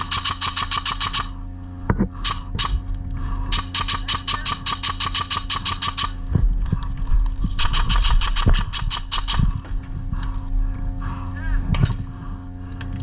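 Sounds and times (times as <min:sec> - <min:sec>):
airsoft gun firing full auto: 0:00.0 - 0:01.4, 0:02.2 - 0:02.8, 0:03.5 - 0:06.2, 0:07.6 - 0:09.5.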